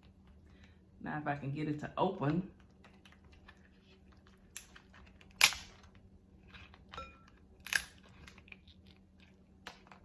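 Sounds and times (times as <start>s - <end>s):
crab shell cracking: 4.4s - 6.9s, 7.5s - 10.0s.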